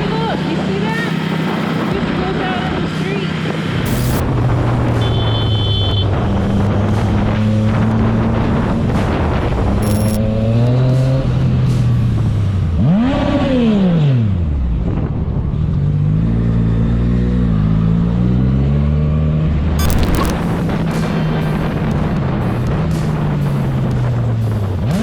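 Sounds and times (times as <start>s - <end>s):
motorcycle engine revving: 3.9s - 14.6s.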